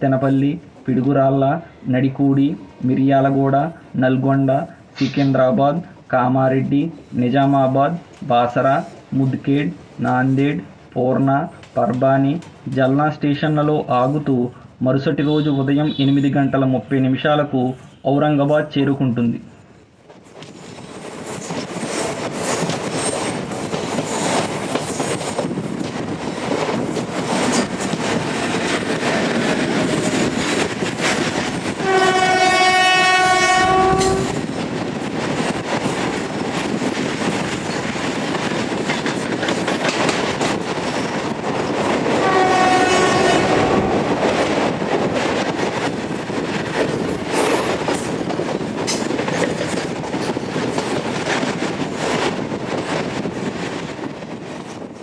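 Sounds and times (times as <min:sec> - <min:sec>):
freight train rumbling past: 0:19.7 - 0:55.0
locomotive horn: 0:31.8 - 0:34.4, 0:42.2 - 0:43.9.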